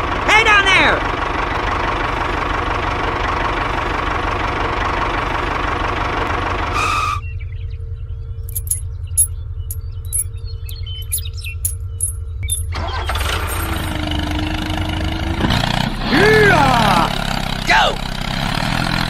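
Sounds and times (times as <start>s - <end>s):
engine chugging: 0.0s - 19.0s
light clicks and rattles: 8.5s - 9.3s, 10.1s - 10.3s.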